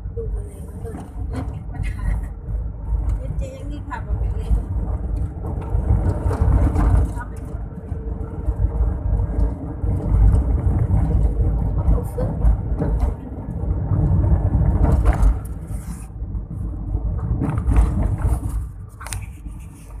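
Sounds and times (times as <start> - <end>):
car road and engine rumble: 0.0 - 20.0
knocks and scrapes: 5.2 - 7.5, 13.9 - 20.0.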